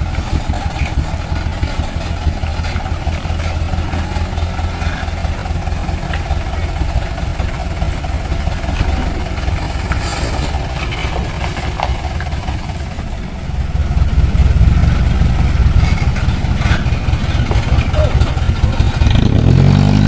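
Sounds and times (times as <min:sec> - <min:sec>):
diesel truck engine running: 0:00.0 - 0:20.0.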